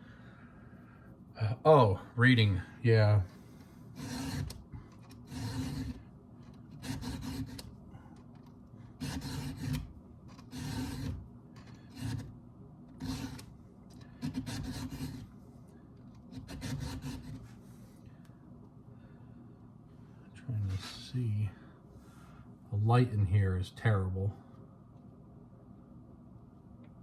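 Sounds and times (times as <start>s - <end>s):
file rasping on chainsaw chain: 4.0s - 4.6s, 5.2s - 6.0s, 6.8s - 7.6s, 9.0s - 9.8s, 10.5s - 11.2s, 14.2s - 15.2s.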